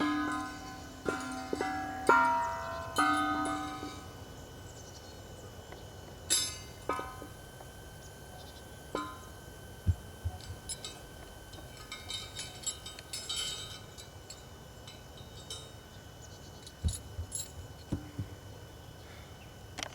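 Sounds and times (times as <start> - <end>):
steel gears clinking: 10.5 - 15.8
dull thuds: 16.8 - 18.4.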